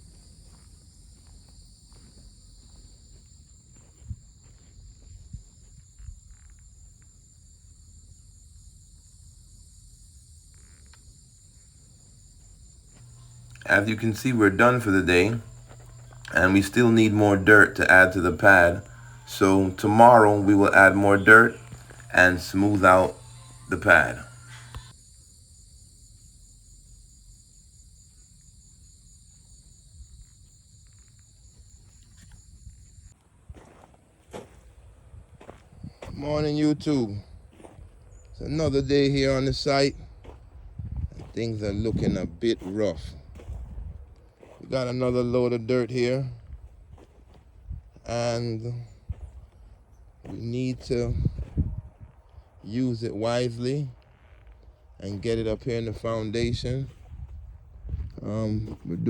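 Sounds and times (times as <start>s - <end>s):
insects trilling: 0.0s - 40.6s
crickets chirring: 0.0s - 41.6s.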